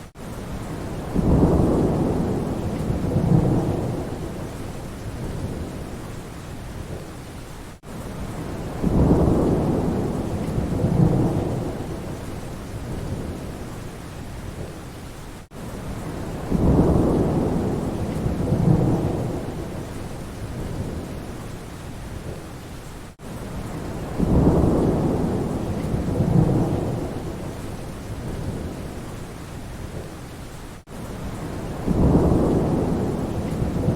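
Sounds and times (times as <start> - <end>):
steady rain: 0.0 - 33.9
thunder rumbling: 0.6 - 6.0, 8.2 - 13.6, 15.9 - 21.3, 23.6 - 29.0, 31.2 - 33.9.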